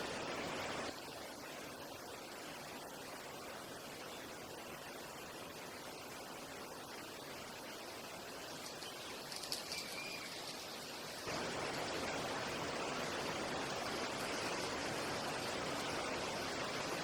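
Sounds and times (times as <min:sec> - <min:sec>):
rushing water: 0:00.0 - 0:17.0.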